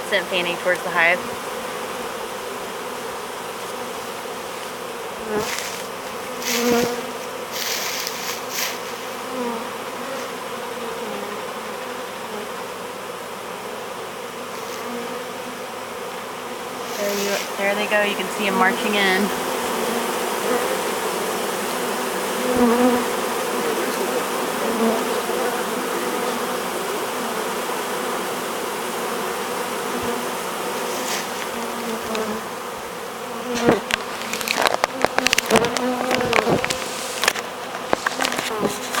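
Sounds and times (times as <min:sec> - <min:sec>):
bee swarm buzzing: 0:00.0 - 0:39.0
sharp clicks and knocks: 0:33.6 - 0:39.0.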